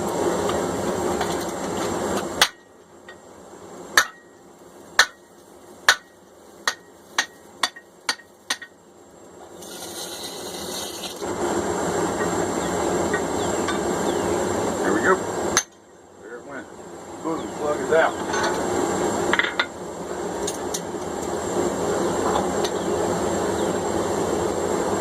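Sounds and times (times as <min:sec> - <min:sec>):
hammer striking hot punch: 0:02.4 - 0:02.7, 0:04.0 - 0:04.4, 0:05.0 - 0:05.3, 0:05.9 - 0:08.7.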